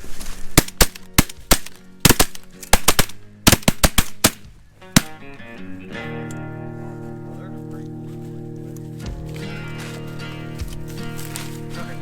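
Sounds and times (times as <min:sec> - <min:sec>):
shotgun blasts: 0:00.6 - 0:05.2.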